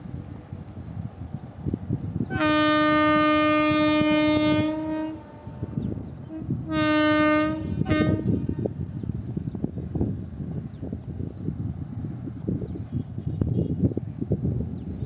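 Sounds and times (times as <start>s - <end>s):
train horn blasts: 2.3s - 8.8s.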